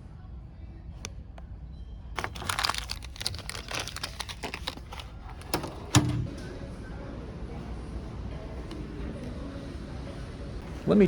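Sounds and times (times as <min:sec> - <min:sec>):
crinkling and clicking: 0:02.2 - 0:06.3.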